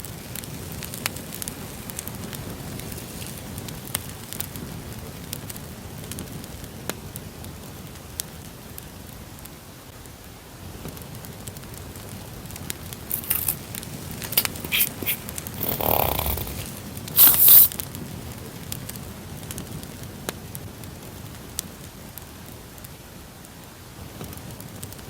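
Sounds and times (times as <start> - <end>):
campfire crackling: 0.0 - 10.1, 10.7 - 25.0
packaging rustling: 13.1 - 17.7.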